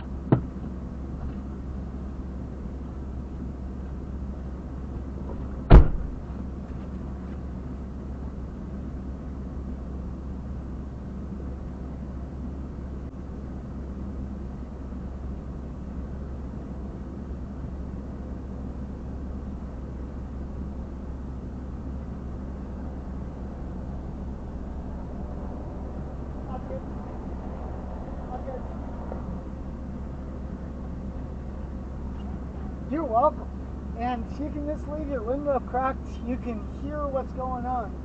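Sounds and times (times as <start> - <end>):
car engine idling: 0.0 - 38.0
sharp thump: 0.3 - 0.6, 5.3 - 6.2.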